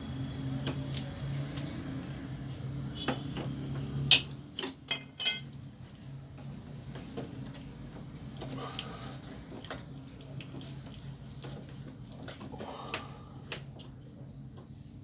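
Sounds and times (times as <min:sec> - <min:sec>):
metal parts clicking and clinking: 0:04.1 - 0:05.9
ringing knocks: 0:04.9 - 0:05.8.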